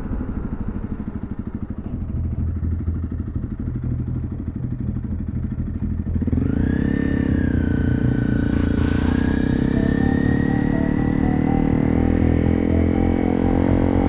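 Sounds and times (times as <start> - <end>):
motorcycle engine running: 0.0 - 14.0
music: 8.8 - 14.0.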